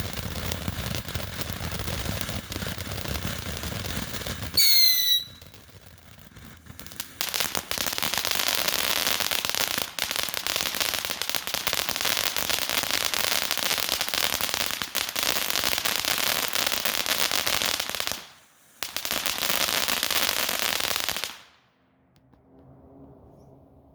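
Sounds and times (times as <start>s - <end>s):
firework fountain hissing and crackling: 0.0s - 21.6s.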